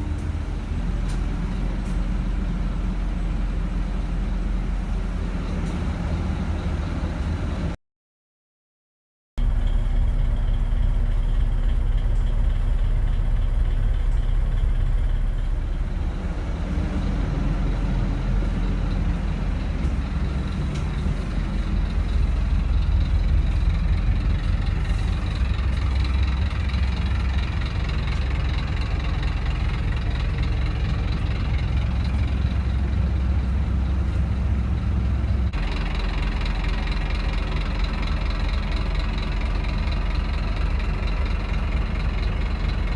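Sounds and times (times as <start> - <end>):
bus diesel engine idling: 0.0 - 7.8, 9.4 - 42.9.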